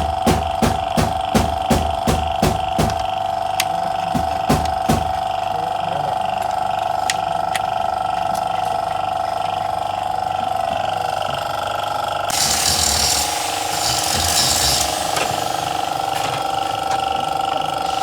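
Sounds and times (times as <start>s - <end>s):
machine whining: 12.3s - 18.0s.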